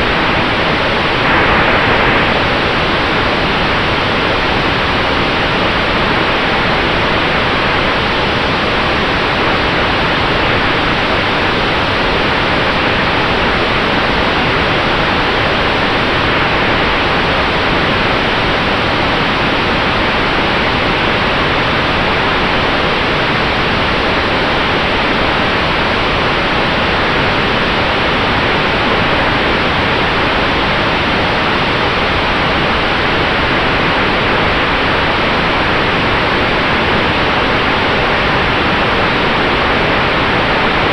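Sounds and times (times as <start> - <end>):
steady rush of air: 0.1 - 4.8.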